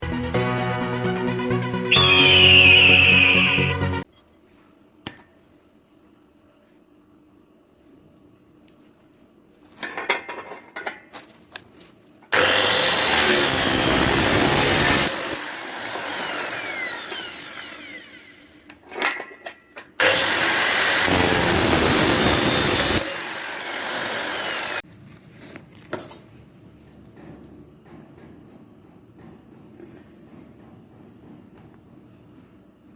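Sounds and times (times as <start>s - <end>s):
chainsaw grinder cutting: 12.3s - 18.6s, 20.0s - 24.8s.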